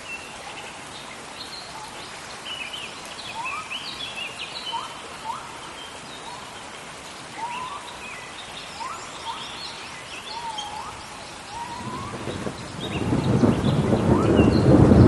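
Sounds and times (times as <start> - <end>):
rain hissing: 0.0 - 15.0
birds calling: 1.1 - 15.0
thunder rumbling: 11.6 - 15.0.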